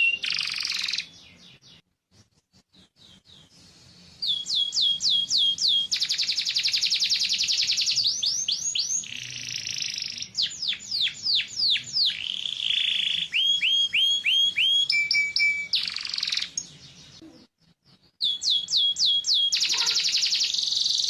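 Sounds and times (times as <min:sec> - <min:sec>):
canary singing: 0:00.0 - 0:01.8, 0:02.7 - 0:21.0.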